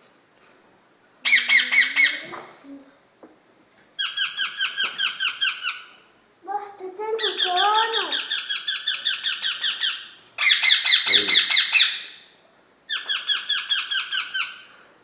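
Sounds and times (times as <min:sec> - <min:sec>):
parakeet chicks squawking: 0:01.2 - 0:02.4, 0:04.0 - 0:06.0, 0:07.1 - 0:12.2, 0:12.9 - 0:14.6.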